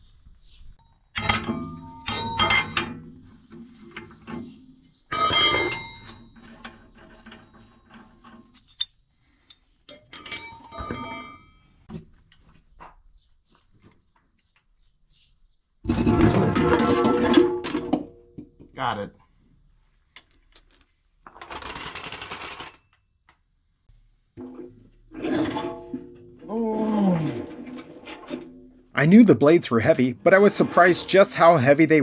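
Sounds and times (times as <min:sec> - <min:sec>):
metal clanks and knocks: 0:01.2 - 0:08.9, 0:09.9 - 0:13.0, 0:15.9 - 0:18.7, 0:24.4 - 0:32.0.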